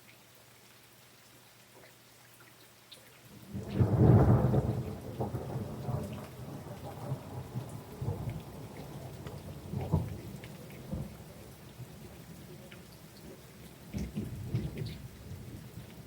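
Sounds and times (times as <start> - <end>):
rain pattering: 0.0 - 16.0
thunderclap rumbling: 3.5 - 10.2.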